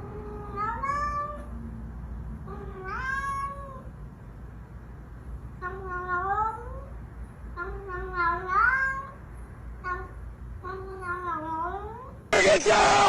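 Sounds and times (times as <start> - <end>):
cat meowing: 0.2 - 1.5, 2.5 - 3.9, 7.7 - 9.2.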